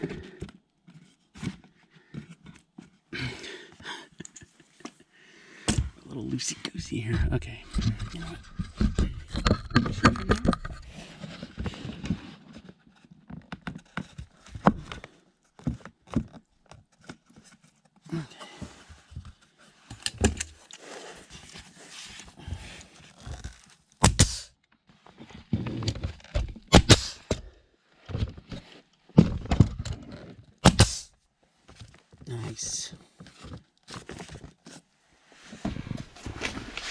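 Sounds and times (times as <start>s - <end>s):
sharp loud strikes: 24.0s - 24.4s, 26.7s - 27.2s, 30.7s - 31.0s.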